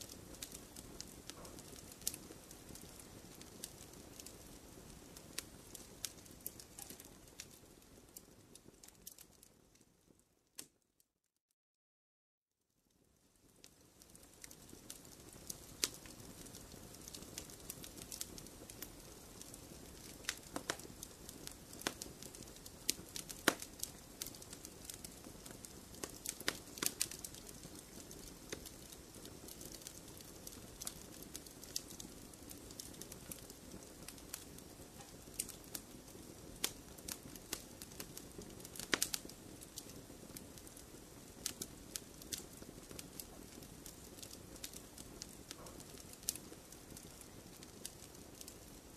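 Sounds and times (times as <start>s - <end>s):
wood fire crackling: 0.0s - 10.8s, 12.9s - 48.9s
flame rushing: 14.3s - 48.7s.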